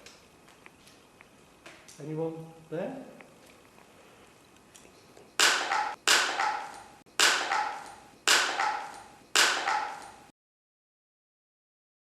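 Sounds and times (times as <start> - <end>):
sharp bangs: 5.4 - 10.1.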